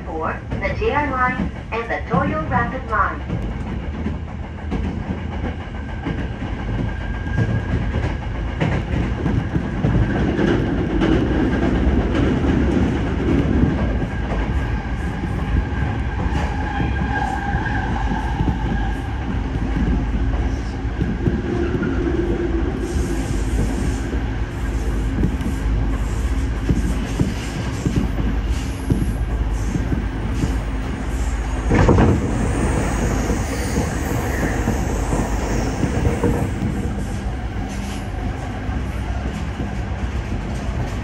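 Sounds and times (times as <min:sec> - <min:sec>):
rumble of train wheels on rail: 0:00.0 - 0:41.0
clacks over rail joints: 0:00.4 - 0:22.5, 0:24.8 - 0:31.0, 0:31.6 - 0:41.0.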